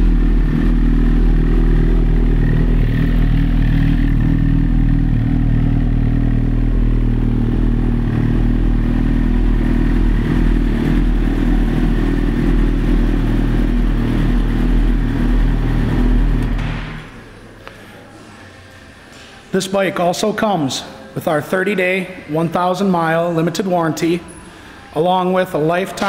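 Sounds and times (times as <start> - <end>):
motorcycle engine idling: 0.0 - 16.6.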